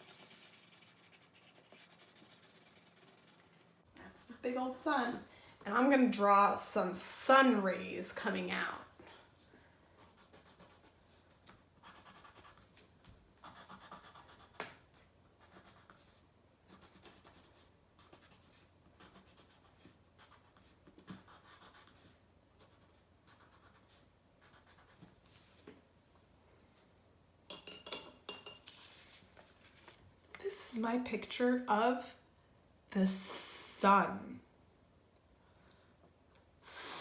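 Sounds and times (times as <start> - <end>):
pencil scratching on paper: 0.0 - 3.9, 10.0 - 11.0, 11.8 - 12.7, 13.4 - 14.7, 15.4 - 25.1.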